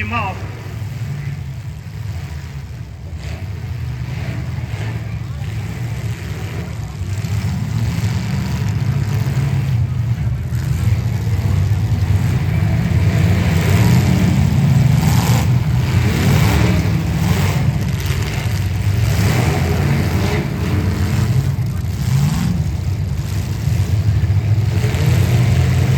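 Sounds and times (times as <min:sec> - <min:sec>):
car engines revving: 0:00.0 - 0:25.9.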